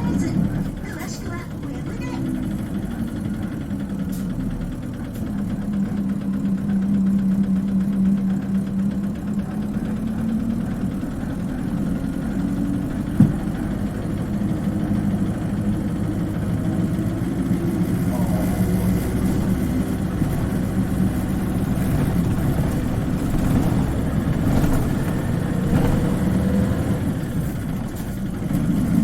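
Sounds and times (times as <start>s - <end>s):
bus diesel engine humming: 0.0s - 29.0s
short knock: 13.2s - 13.6s.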